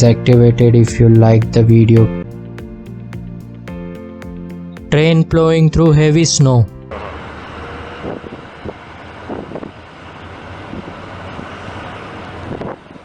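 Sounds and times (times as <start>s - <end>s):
train engine hum: 6.5s - 13.0s.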